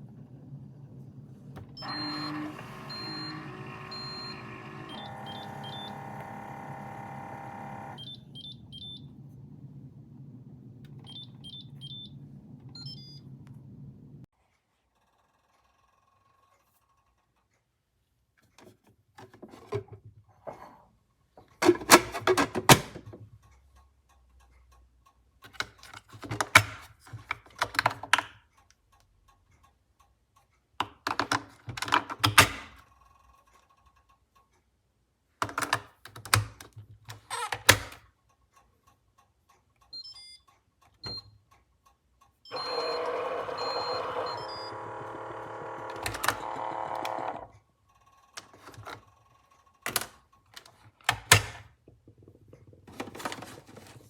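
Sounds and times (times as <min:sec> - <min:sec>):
coffee maker humming: 0:01.6 - 0:08.3, 0:42.5 - 0:47.5
even electronic tones: 0:01.8 - 0:06.3, 0:42.5 - 0:45.3.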